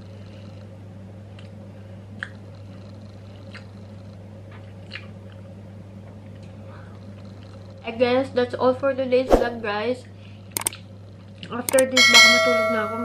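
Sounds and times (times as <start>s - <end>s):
steady low hum: 0.0s - 13.0s
chewing a cookie: 1.3s - 7.8s, 10.6s - 11.8s
small crunchy clicks: 10.6s - 11.9s.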